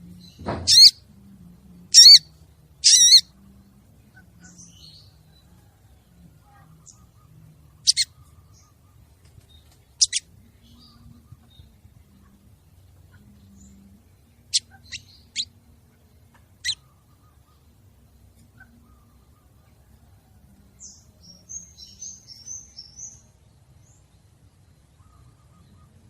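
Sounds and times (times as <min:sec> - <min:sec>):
low thump: 0:00.4 - 0:00.8
bird calling: 0:00.6 - 0:01.0, 0:01.9 - 0:02.2, 0:02.8 - 0:03.3, 0:06.6 - 0:09.2, 0:10.0 - 0:11.7.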